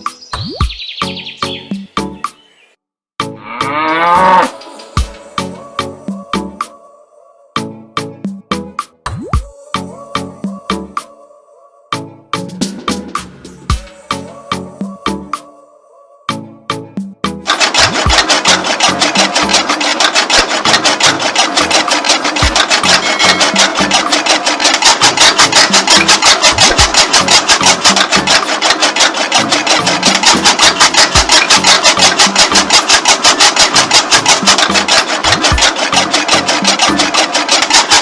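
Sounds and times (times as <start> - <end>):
small engine running: 17.4 - 38.0.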